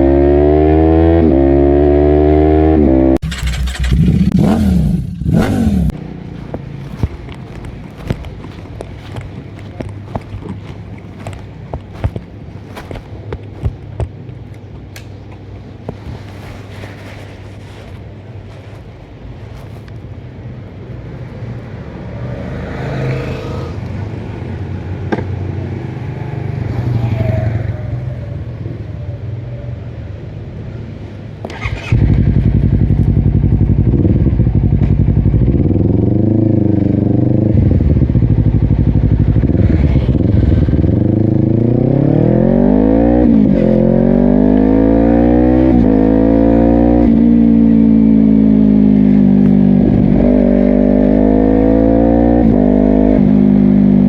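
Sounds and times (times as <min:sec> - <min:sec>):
motorcycle engine revving: 0:00.0 - 0:10.5, 0:31.4 - 0:54.0
passing vehicles: 0:00.0 - 0:54.0.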